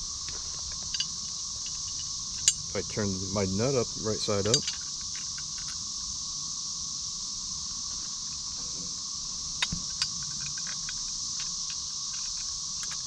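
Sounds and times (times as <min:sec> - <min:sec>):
insects chorus: 0:00.0 - 0:13.0
metal clinks: 0:00.7 - 0:02.8, 0:04.2 - 0:05.8.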